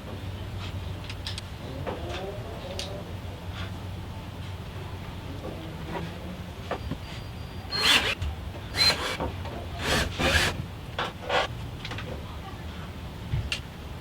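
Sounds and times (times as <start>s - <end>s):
short rasping scrapes: 7.7s - 8.2s, 8.8s - 10.6s.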